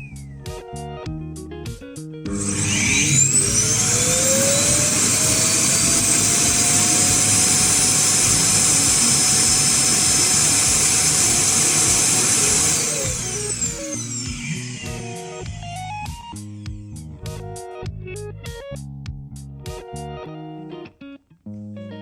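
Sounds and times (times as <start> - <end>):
robot vacuum motor whining: 2.3 - 16.7.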